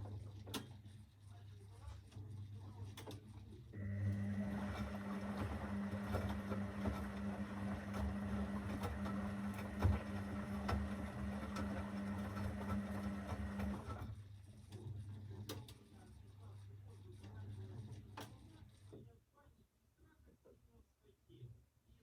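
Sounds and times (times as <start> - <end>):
washing machine motor humming: 3.7 - 15.5.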